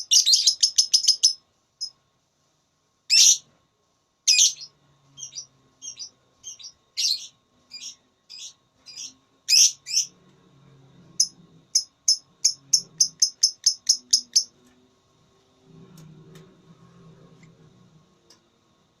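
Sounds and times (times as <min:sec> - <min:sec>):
lovebird chirping: 0:00.0 - 0:01.9, 0:03.1 - 0:03.4, 0:04.3 - 0:10.1, 0:11.2 - 0:14.5.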